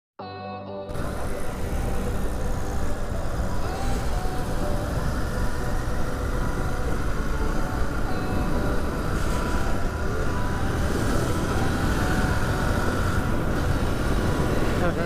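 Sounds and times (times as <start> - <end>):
motorcycle engine running: 0.9 - 15.0.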